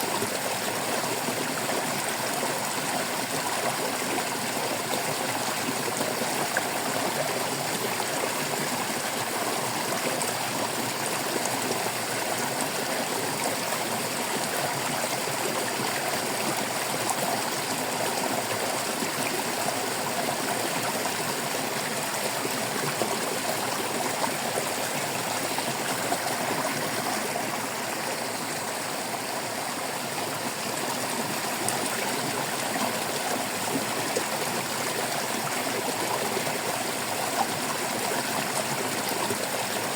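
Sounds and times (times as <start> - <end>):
stream babbling over rocks: 0.0 - 39.9.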